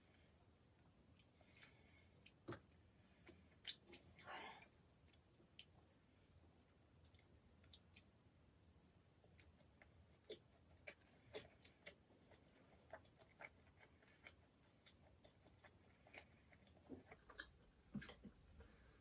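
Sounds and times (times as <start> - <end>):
chewing and mouth noises: 9.2 - 18.4.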